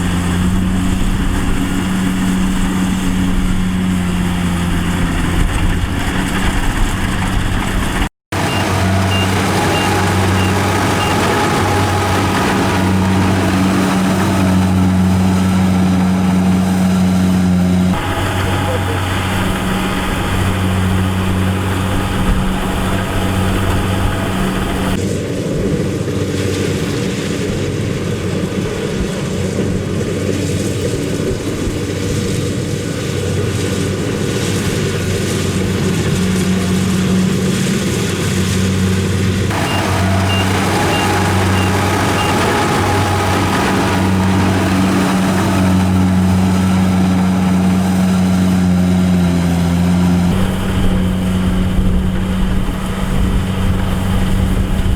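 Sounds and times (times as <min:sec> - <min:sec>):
harvester engine humming: 0:00.0 - 0:25.8, 0:27.5 - 0:54.9.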